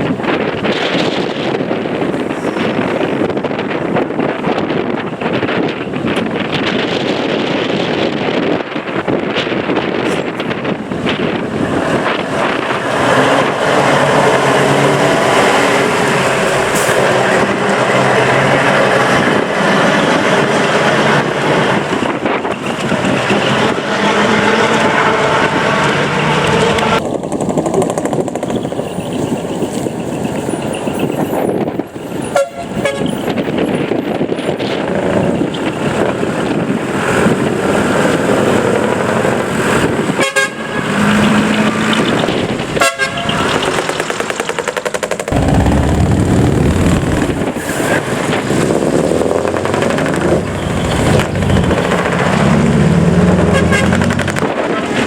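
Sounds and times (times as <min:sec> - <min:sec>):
heavy trucks engines running: 0:00.0 - 0:55.0
truck horn toots: 0:32.3 - 0:33.3, 0:40.2 - 0:41.4, 0:42.8 - 0:43.8, 0:53.2 - 0:55.0.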